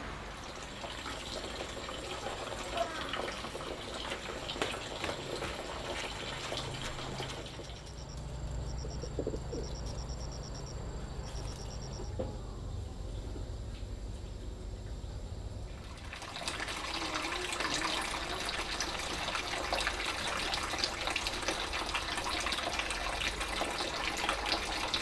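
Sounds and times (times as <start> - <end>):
low steady hum: 6.7 - 19.8
bird chirping: 7.6 - 12.2.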